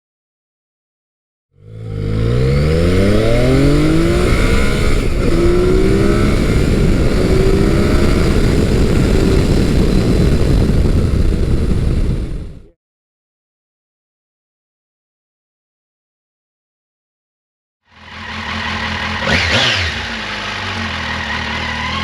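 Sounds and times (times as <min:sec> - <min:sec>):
motorcycle engine accelerating: 0:01.6 - 0:12.8, 0:17.9 - 0:22.0.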